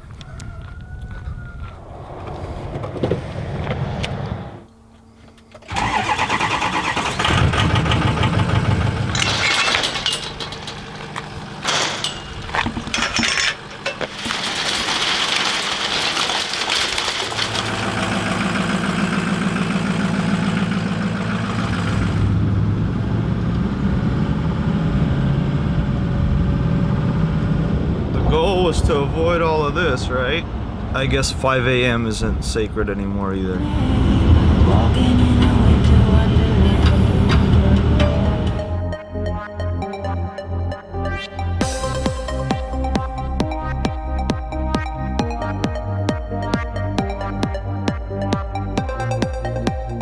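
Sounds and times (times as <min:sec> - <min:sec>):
vehicle engine running: 0:04.7 - 0:28.2, 0:30.6 - 0:38.8.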